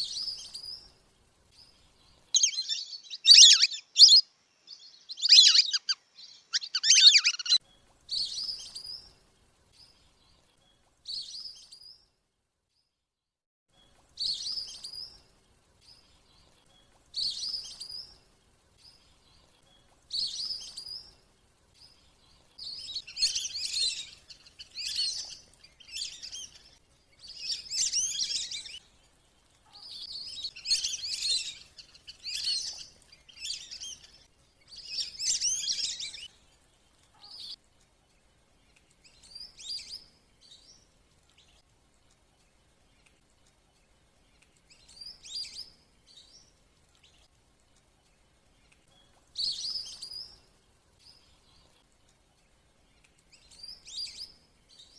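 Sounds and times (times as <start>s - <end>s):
ducks twittering whistles: 2.4s - 4.2s, 5.1s - 7.6s.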